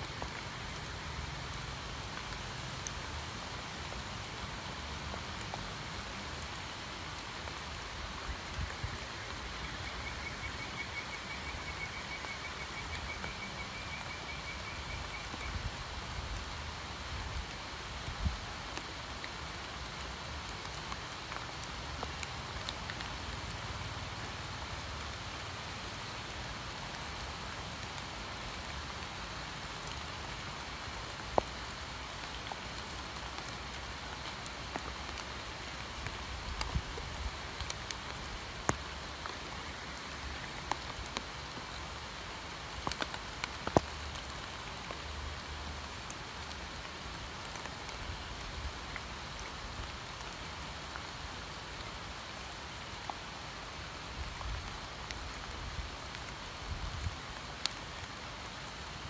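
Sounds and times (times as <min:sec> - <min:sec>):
rain falling on pond water: 0:00.0 - 0:59.0
single raindrops striking: 0:42.7 - 0:48.0.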